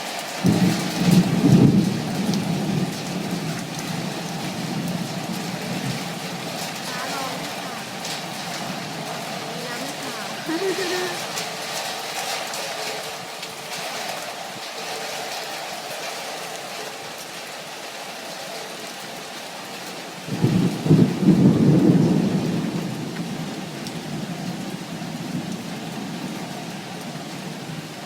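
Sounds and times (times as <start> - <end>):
heavy rain: 0.0 - 28.0
thunder clap and rumble: 0.4 - 10.4, 20.3 - 26.4.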